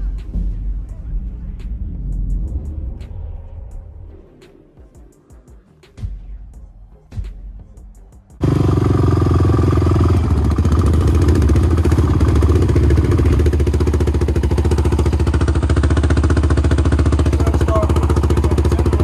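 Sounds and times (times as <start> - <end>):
dirt bike engine idling: 8.4 - 19.0.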